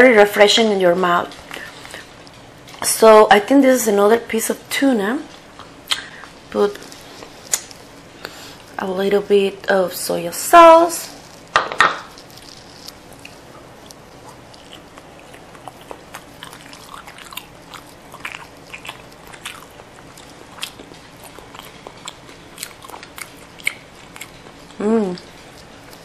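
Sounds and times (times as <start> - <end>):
mouth clicks and smacks: 5.8 - 6.2
person chewing: 11.2 - 26.0.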